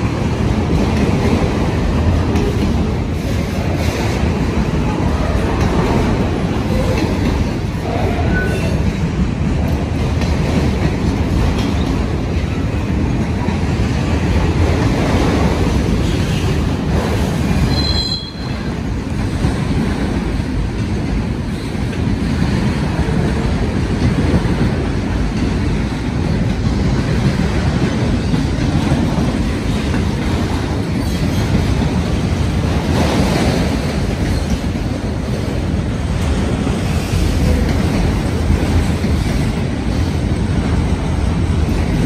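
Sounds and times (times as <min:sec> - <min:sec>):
train wheels rumbling on rails: 0:00.0 - 0:42.0
high wheel squeal: 0:17.7 - 0:18.6.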